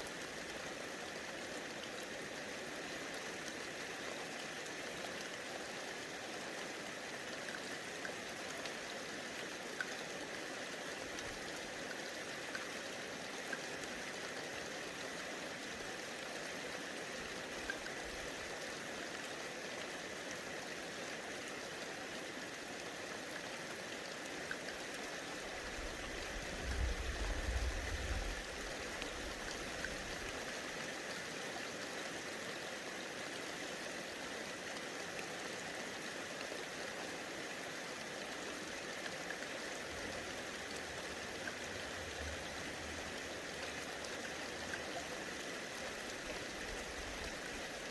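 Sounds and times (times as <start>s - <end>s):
light rain hissing: 25.5s - 30.4s.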